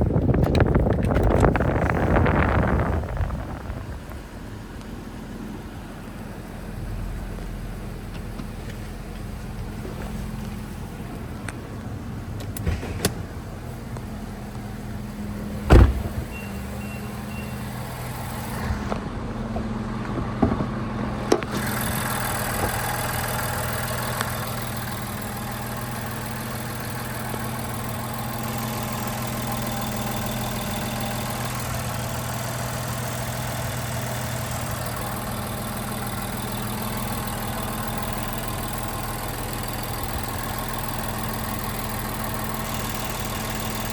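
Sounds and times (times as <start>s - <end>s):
car engine idling: 0.0s - 43.9s
car door thump: 15.6s - 16.5s.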